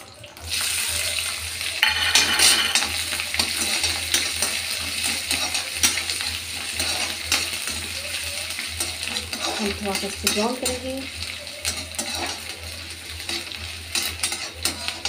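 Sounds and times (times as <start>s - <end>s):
garlic sizzling in hot oil: 0.0s - 15.0s
metal spoon scraping pan: 8.8s - 10.8s, 13.3s - 15.0s.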